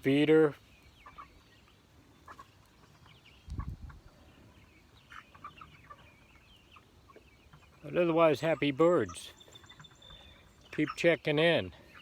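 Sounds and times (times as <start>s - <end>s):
chickens clucking and peeping: 0.0s - 12.0s.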